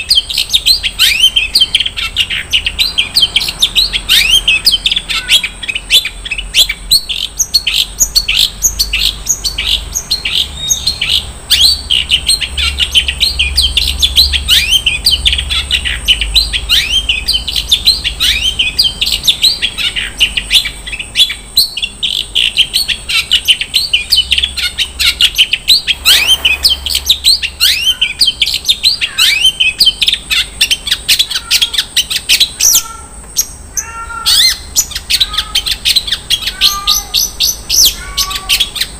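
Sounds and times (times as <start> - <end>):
bird singing sweeping chirps: 0.0 - 38.9
bird harsh rasp: 25.0 - 29.4.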